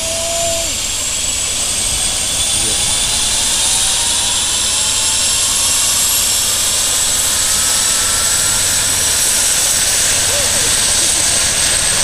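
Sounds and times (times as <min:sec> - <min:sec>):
helicopter rotor beat: 0:00.0 - 0:12.0
helicopter turbine whine: 0:00.0 - 0:12.0.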